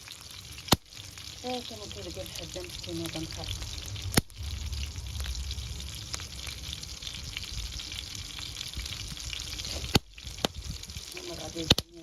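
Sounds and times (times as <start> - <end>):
sizzling hiss: 0.0 - 12.0
wood fire crackling: 0.0 - 12.0.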